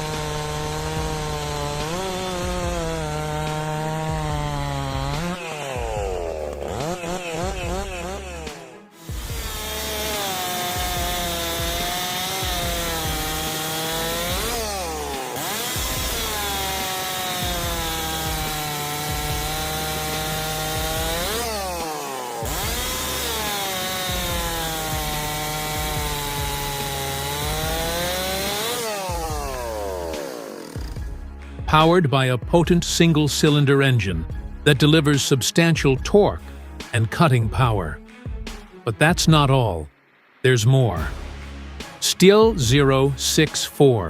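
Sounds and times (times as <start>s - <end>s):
chainsaw cutting wood: 0.0s - 31.7s.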